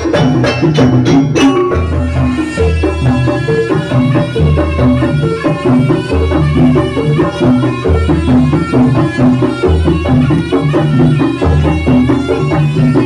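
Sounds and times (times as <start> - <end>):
drums and tuned percussion: 0.0 - 13.0.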